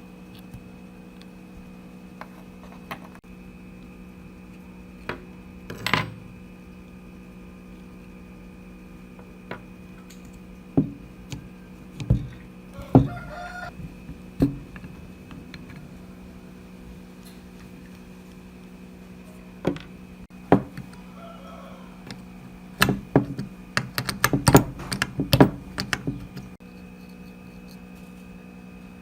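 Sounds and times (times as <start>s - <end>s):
steady hum: 0.0s - 29.0s
metal parts clinking and knocking: 5.0s - 6.4s, 22.8s - 27.8s.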